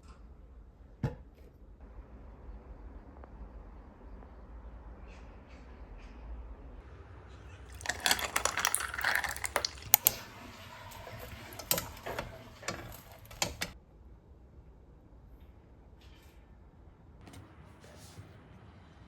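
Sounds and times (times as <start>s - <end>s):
quick clicks and rattles: 7.7s - 13.8s.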